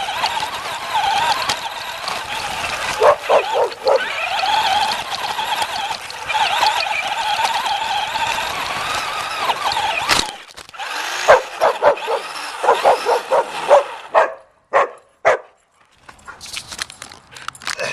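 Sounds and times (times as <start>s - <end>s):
steady whirring: 0.0s - 14.4s
puppy yipping: 3.0s - 4.7s, 11.3s - 15.5s.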